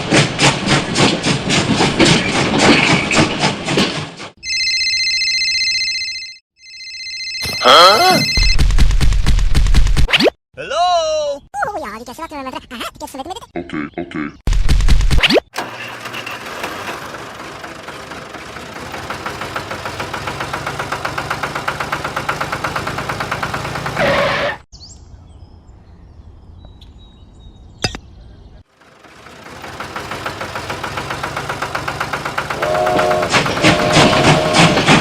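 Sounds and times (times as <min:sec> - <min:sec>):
small engine pulsing: 0:15.6 - 0:24.6, 0:28.7 - 0:35.0.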